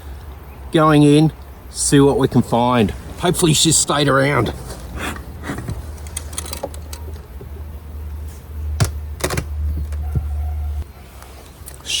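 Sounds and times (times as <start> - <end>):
wooden beehive lid and frames knocking: 8.8 - 10.4.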